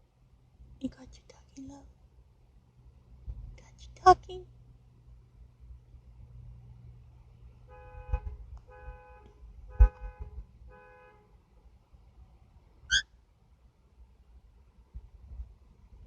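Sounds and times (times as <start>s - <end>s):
two-tone car horn honks: 7.7s - 11.2s.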